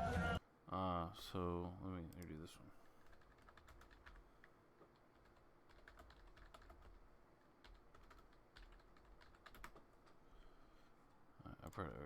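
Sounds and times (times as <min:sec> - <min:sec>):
faint keyboard typing: 0:02.1 - 0:10.2, 0:11.6 - 0:12.0.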